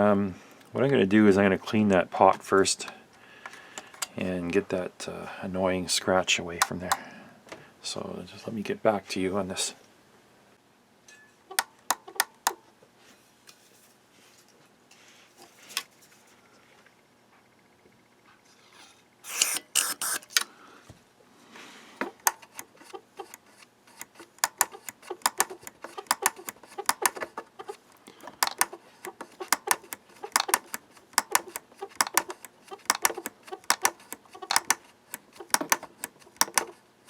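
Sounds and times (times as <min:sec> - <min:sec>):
small clicks and taps: 0:11.5 - 0:12.6, 0:22.0 - 0:36.8
spray can hissing: 0:19.3 - 0:20.3.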